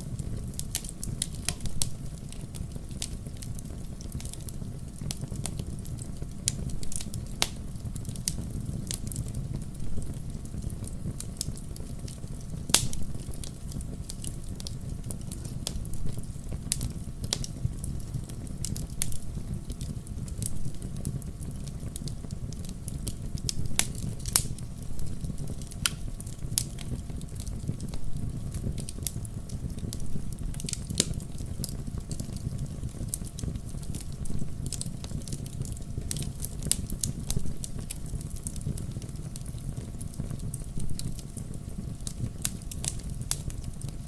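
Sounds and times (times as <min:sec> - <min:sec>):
fire low rumble: 0:00.0 - 0:44.0
campfire pops and snaps: 0:00.1 - 0:44.0.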